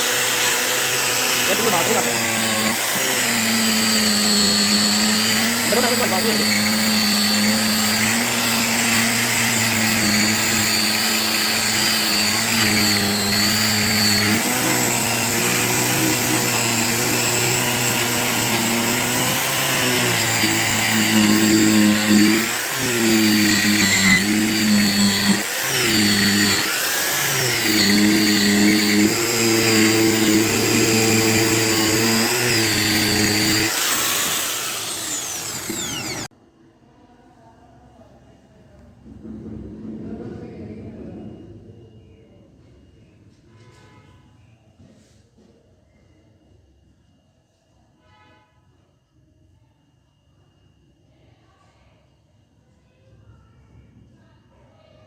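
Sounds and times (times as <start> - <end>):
electric buffing motor running: 0.0 - 36.3.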